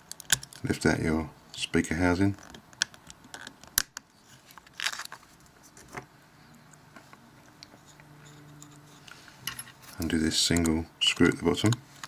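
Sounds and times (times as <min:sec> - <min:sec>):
plastic parts clicking: 0:00.0 - 0:00.7, 0:02.4 - 0:05.2.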